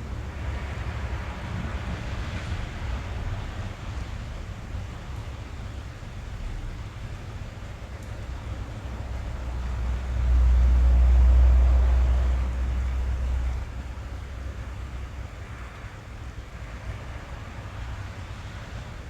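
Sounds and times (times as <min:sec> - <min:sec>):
deep low rumble: 0:00.0 - 0:14.9
rain on car roof: 0:00.0 - 0:19.0.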